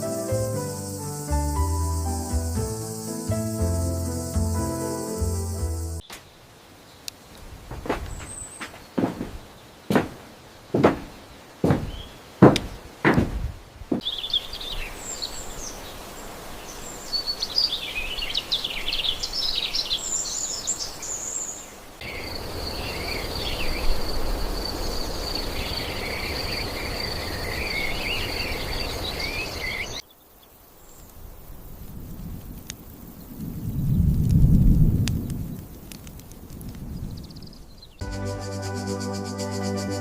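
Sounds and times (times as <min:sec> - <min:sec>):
high insect drone: 0:00.0 - 0:06.0, 0:38.0 - 0:40.0
sharp knocks: 0:07.7 - 0:14.0.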